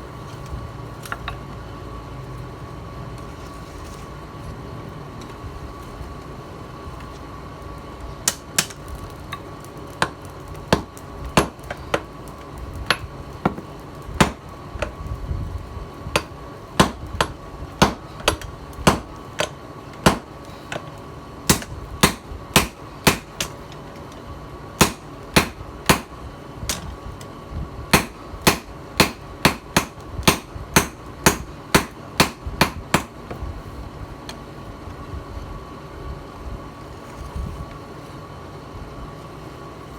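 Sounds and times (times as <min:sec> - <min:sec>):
faint hum with thin whine: 0:00.0 - 0:39.9
hammer striking steel: 0:14.2 - 0:14.4, 0:16.2 - 0:20.3, 0:21.5 - 0:23.6, 0:24.8 - 0:26.1, 0:28.0 - 0:33.2.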